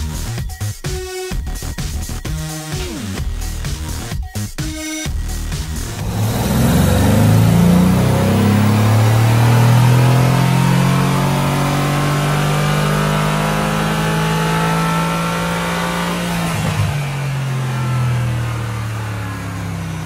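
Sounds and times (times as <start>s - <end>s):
car engine idling: 5.9s - 11.8s, 15.0s - 20.0s.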